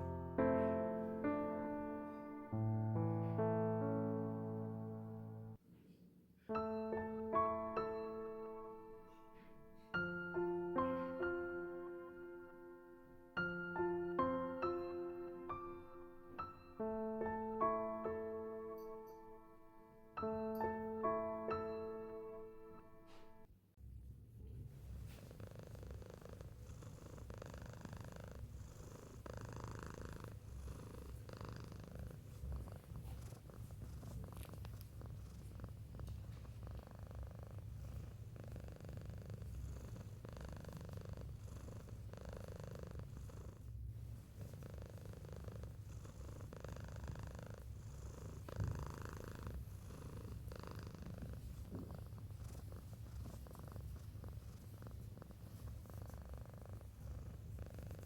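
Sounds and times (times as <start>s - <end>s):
cat purring: 24.3s - 58.0s.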